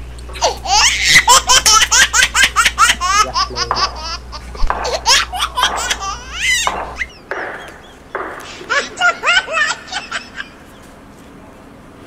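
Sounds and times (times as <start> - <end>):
baby giggling: 0.3 - 7.9, 8.5 - 10.7
baby squealing: 4.8 - 7.1.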